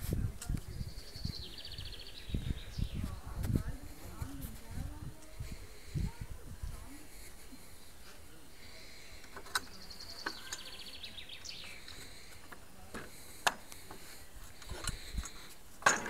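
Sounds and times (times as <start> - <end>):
footsteps and handling clicks: 11.6 - 16.0.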